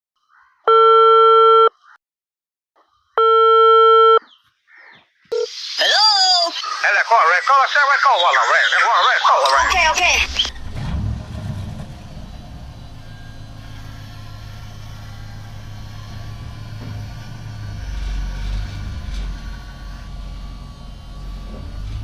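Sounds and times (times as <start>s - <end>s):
vehicle motor humming: 9.7s - 22.0s.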